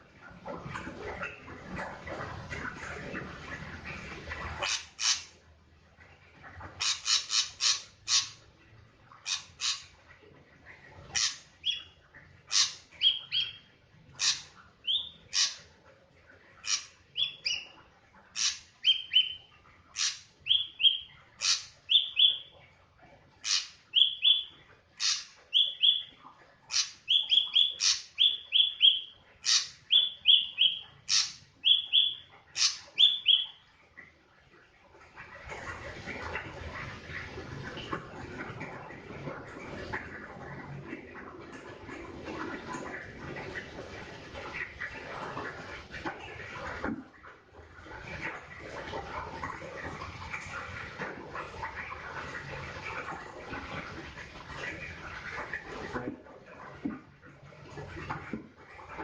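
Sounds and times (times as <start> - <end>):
drongo calling: 4.6 - 5.3, 6.8 - 8.4, 9.3 - 9.9, 12.5 - 13.6, 14.2 - 15.6, 23.4 - 26.1, 26.7 - 33.6.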